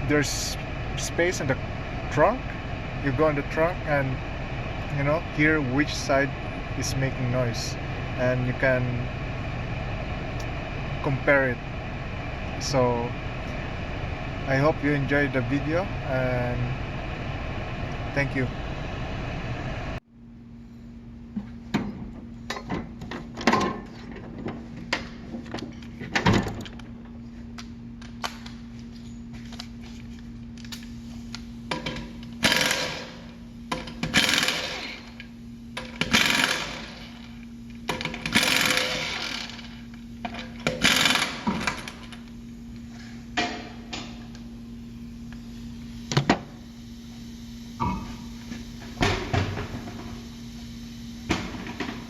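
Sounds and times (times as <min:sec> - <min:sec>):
steady hum: 0:00.0 - 0:52.0
pneumatic tool running: 0:32.4 - 0:33.3, 0:33.9 - 0:35.2, 0:35.9 - 0:39.8, 0:40.6 - 0:42.1.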